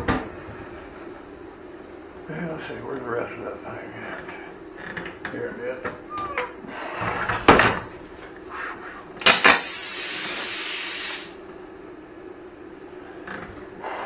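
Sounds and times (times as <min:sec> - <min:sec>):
plasma cutter clicks: 0:09.2 - 0:10.4
plasma cutter hissing: 0:09.2 - 0:11.4.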